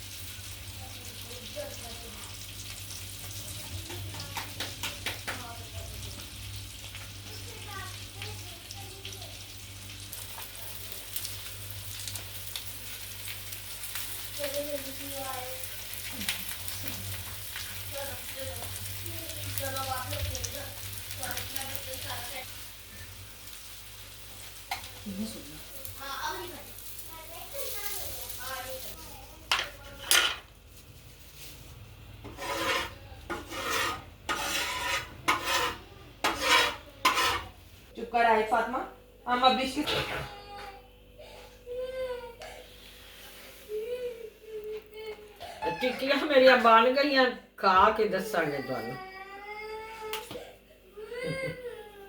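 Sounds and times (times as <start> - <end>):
crackles and pops of frying: 0.0 - 37.9, 50.0 - 50.4
patties sizzling in oil: 0.0 - 38.7
spatula scraping frying pan: 32.2 - 37.6.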